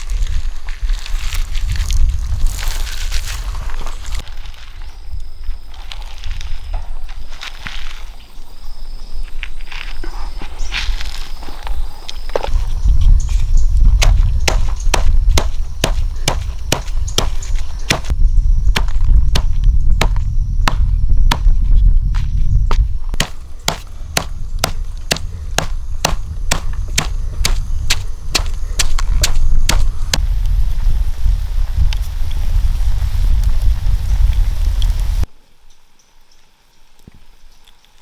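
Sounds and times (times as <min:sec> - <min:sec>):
low rumble: 0:12.6 - 0:34.1
sharp chopping strokes: 0:14.0 - 0:18.1, 0:18.8 - 0:21.5, 0:23.2 - 0:30.2.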